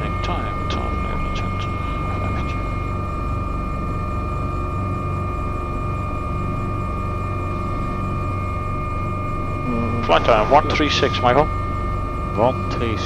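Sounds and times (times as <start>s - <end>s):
helicopter engines rumbling and whining: 0.0s - 2.8s.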